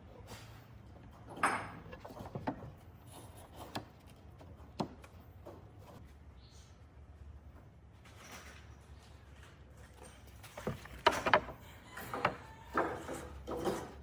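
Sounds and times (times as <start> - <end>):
wood knocking and clattering: 1.3 - 2.8, 3.4 - 5.8, 10.5 - 14.0.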